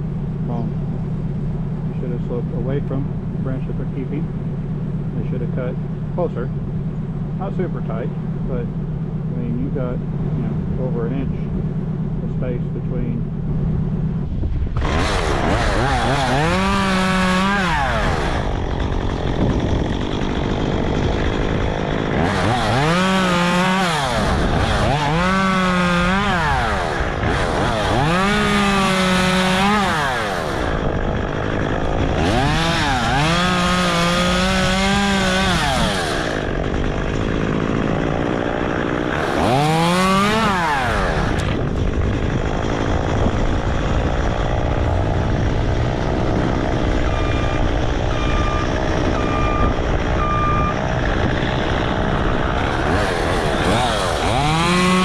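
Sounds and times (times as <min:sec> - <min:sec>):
chainsaw cutting branches: 0:14.7 - 0:55.0.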